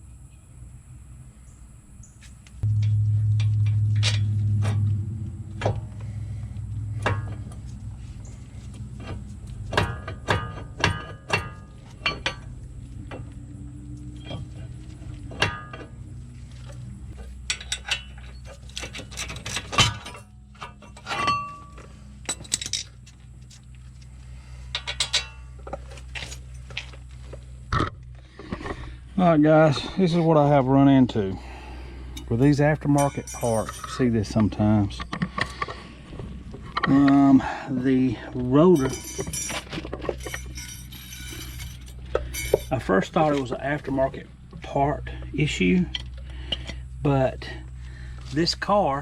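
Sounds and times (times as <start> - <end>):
low hum: 0.0 - 49.0
metal tools clinking: 17.4 - 23.0, 24.7 - 26.6, 32.2 - 35.4, 38.5 - 42.9.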